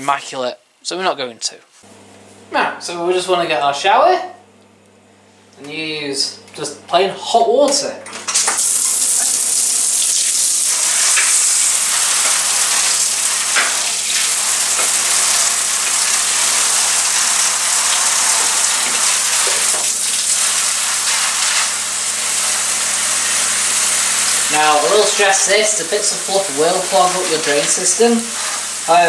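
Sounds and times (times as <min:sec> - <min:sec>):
shower head spraying water: 0:08.4 - 0:29.0.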